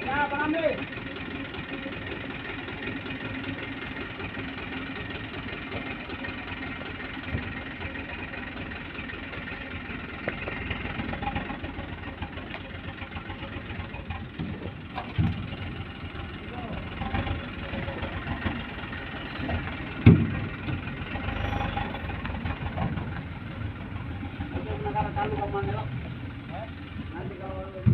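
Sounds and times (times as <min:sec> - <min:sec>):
diesel truck engine running: 0:00.0 - 0:27.9
low thump: 0:20.0 - 0:20.5.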